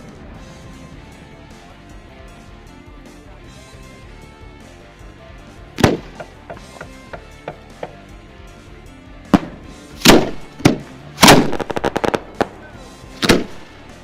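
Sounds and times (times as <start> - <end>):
music: 0.0 - 14.0
fireworks booming: 5.8 - 6.7, 9.3 - 13.8
fireworks crackling pops: 5.8 - 6.8, 9.3 - 12.6, 13.2 - 14.0.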